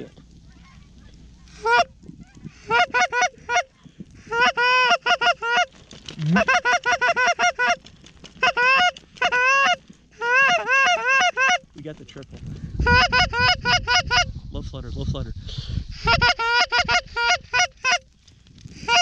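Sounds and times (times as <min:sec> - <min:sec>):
goose honking: 0:01.5 - 0:01.9, 0:02.5 - 0:07.8, 0:08.4 - 0:11.7, 0:12.8 - 0:14.3, 0:16.0 - 0:18.1.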